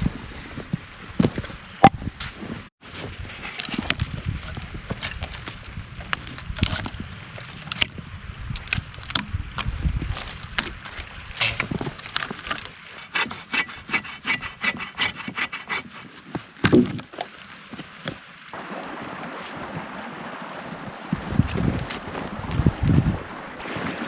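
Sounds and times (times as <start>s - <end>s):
hand saw cutting a branch: 10.2s - 16.2s.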